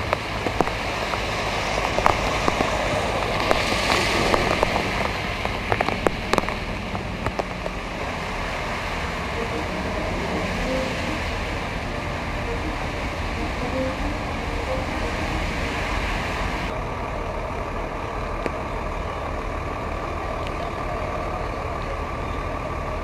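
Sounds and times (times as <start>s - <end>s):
sharp drop ticks: 0.0s - 7.8s
truck swishing through water: 0.0s - 16.7s
heavy rain on standing water: 0.0s - 23.0s.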